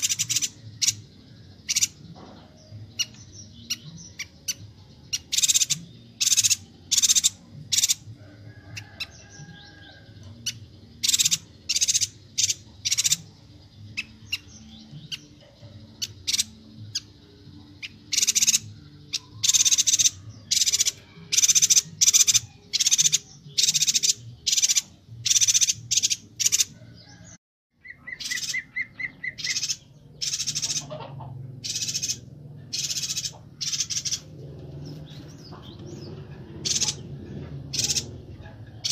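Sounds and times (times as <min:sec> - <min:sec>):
bird high chirps: 0:00.0 - 0:38.9
bird low trill: 0:13.9 - 0:38.9.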